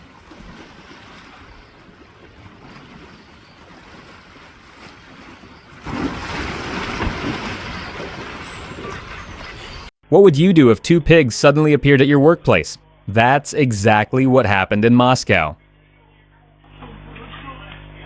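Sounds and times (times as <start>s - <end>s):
water churning and splashing: 0.0s - 9.9s.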